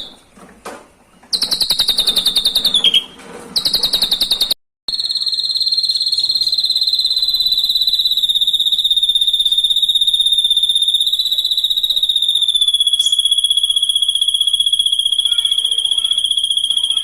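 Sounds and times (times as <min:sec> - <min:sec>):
high pulsing insect-like trill: 0:04.9 - 0:17.0.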